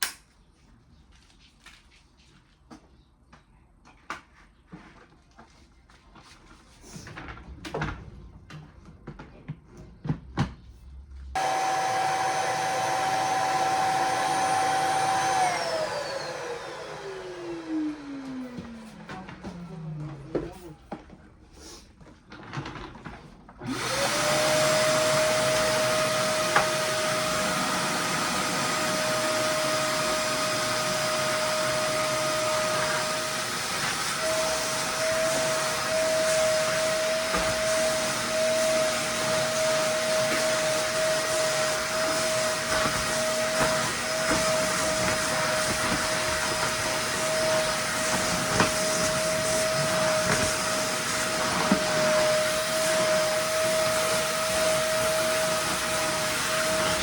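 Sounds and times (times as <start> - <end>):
vacuum cleaner running: 11.4 - 20.8, 23.6 - 57.0.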